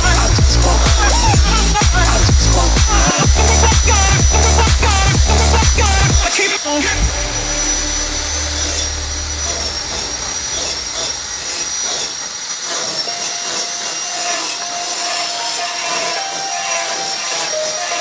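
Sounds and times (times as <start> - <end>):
low hum: 0.0 - 12.3
welding arc hiss and whine: 0.0 - 18.0.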